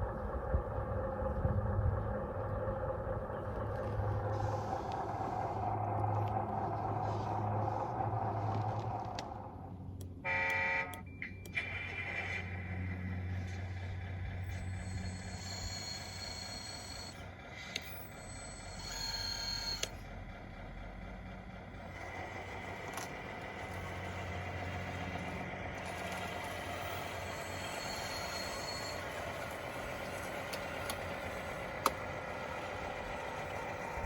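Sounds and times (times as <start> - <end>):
electric motor whine and hum: 14.4 - 20.0, 22.0 - 34.0.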